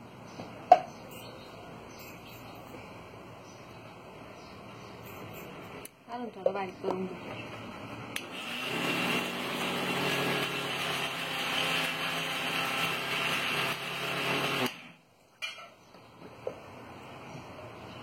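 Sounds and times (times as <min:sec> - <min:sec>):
electric mixer grinder running: 0:08.2 - 0:14.9.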